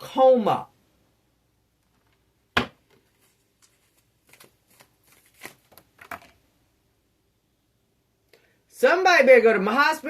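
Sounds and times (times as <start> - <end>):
cards rustling and tapping: 2.8 - 6.4.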